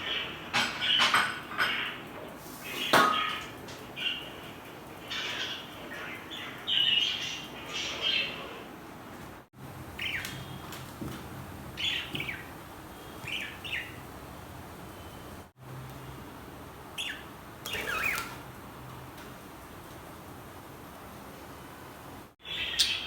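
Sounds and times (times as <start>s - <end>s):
budgerigars chirping: 10.0s - 10.7s, 11.8s - 14.1s, 17.0s - 18.4s, 22.4s - 23.0s.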